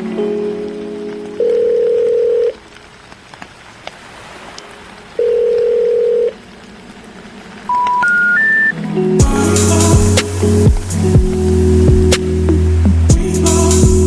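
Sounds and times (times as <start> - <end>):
faint hiss: 0.0 - 14.0
telephone ringback tone: 1.4 - 2.6, 5.2 - 6.4, 7.7 - 8.8
short rising beeps: 7.7 - 8.8.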